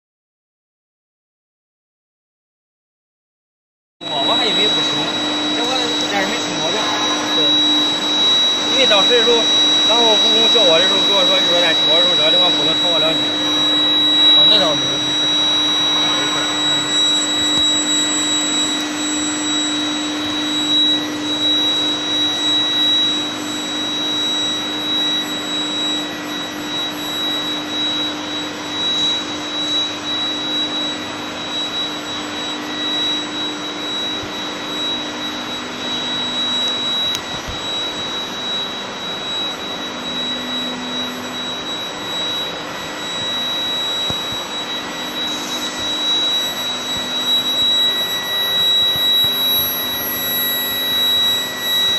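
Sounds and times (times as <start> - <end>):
low machine hum: 4.0 - 25.4
high-pitched machine whine: 4.0 - 51.9.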